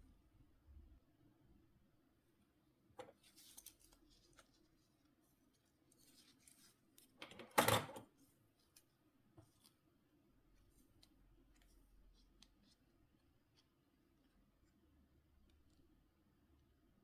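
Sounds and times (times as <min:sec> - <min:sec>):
light plastic clicks and scrapes: 0:03.0 - 0:04.9.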